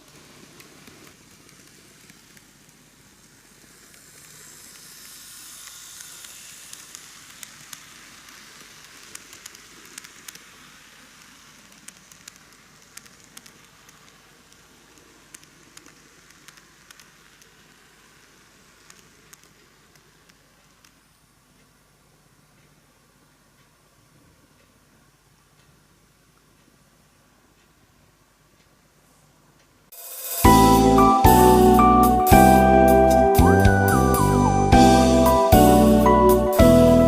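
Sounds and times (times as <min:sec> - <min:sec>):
model train motor and wheels whirring: 0:00.0 - 0:21.0, 0:30.0 - 0:37.0
sharp clicks of train: 0:00.0 - 0:21.8.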